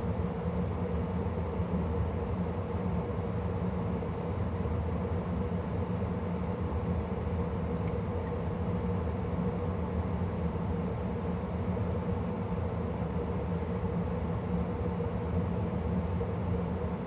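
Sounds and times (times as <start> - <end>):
faint click: 7.7 - 8.4.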